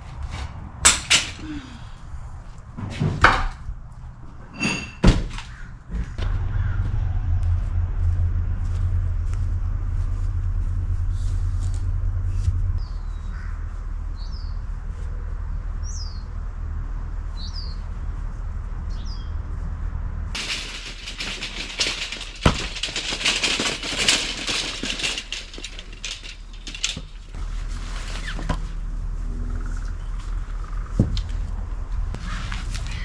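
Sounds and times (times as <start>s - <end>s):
low steady rumble: 6.2s - 18.9s, 19.5s - 33.0s
loud rustling and clattering: 20.4s - 28.8s.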